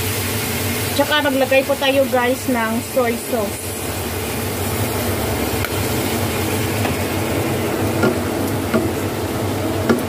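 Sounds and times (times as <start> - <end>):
chicken sizzling in a wok: 0.0 - 10.0
knocks against the pan: 8.0 - 9.0.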